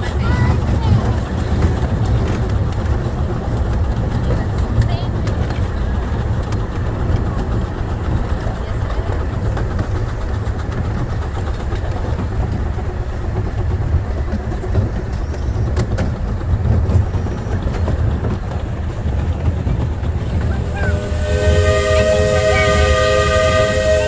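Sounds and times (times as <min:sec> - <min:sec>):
steam train rumbling: 0:00.0 - 0:24.0
wheels clicking on track: 0:00.0 - 0:24.0
steam whistle chord: 0:20.7 - 0:24.0.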